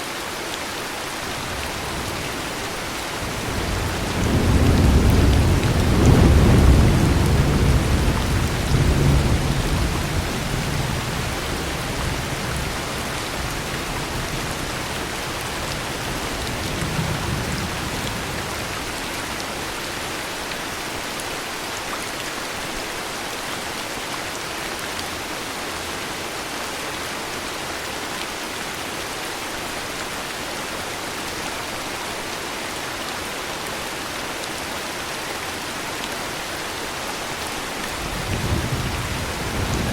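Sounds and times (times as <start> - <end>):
heavy rain: 0.0 - 39.9
thunder rumbling: 1.5 - 13.2, 37.9 - 39.9.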